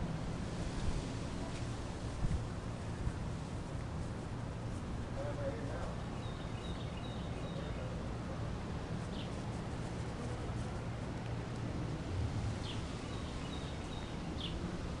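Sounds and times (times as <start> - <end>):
bird chirping: 6.1 - 8.0, 12.6 - 14.6.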